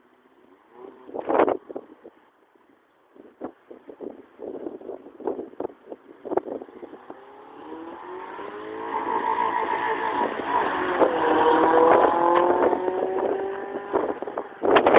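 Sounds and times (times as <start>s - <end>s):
car engine accelerating past: 6.9s - 14.9s
wind knocking on microphone: 10.9s - 14.9s.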